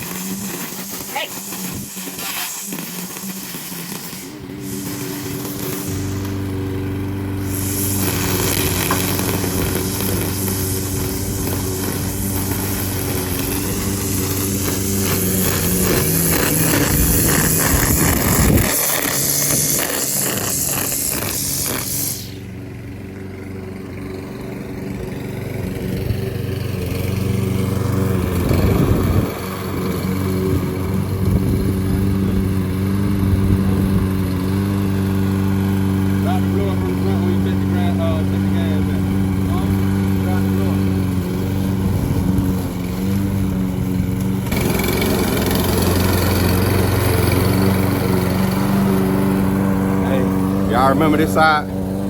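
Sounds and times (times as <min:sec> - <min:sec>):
rough noise: 0:00.0 - 0:22.4
lawn mower engine running: 0:00.0 - 0:52.0.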